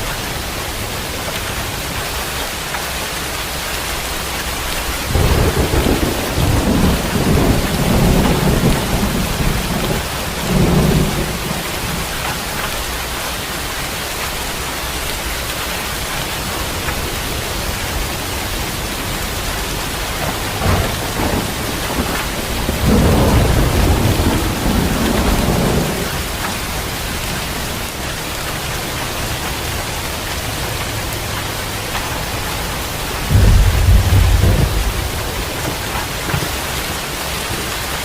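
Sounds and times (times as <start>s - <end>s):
heavy rain hissing: 0.0s - 38.0s
thunder rumbling: 4.9s - 12.9s, 16.4s - 28.0s, 30.1s - 37.9s.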